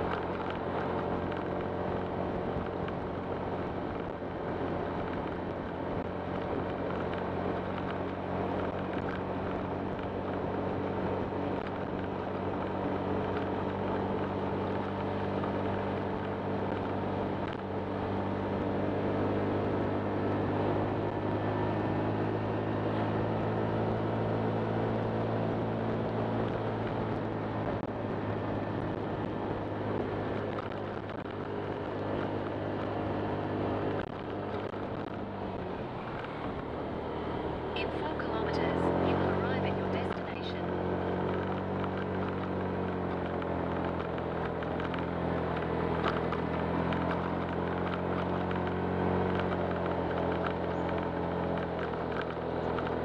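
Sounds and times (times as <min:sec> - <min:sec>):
scooter engine running: 0:29.7 - 0:53.0.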